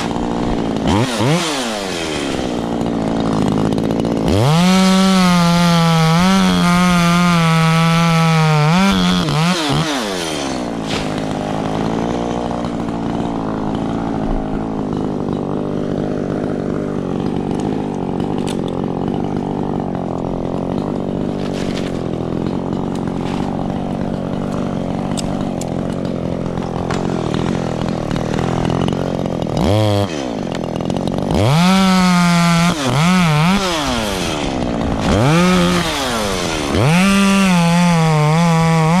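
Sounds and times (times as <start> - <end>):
chainsaw running and revving: 0.0 - 39.0.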